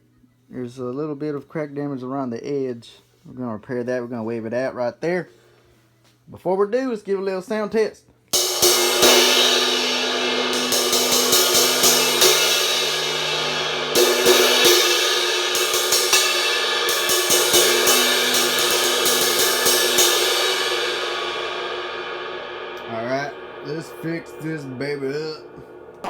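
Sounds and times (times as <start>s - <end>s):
crash cymbal struck with stick: 8.4s - 26.0s
cymbal ringing wash: 8.4s - 26.0s.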